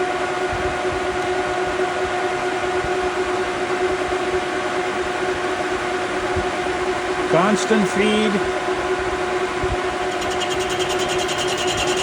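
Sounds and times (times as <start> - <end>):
metal lathe whining: 9.8 - 12.0.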